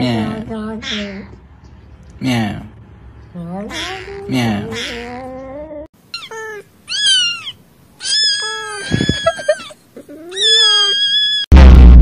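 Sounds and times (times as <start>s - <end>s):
cat meowing: 6.2s - 11.5s.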